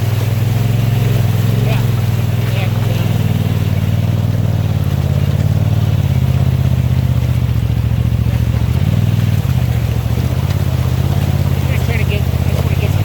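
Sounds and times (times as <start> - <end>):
engine running while driving: 0.0 - 13.0.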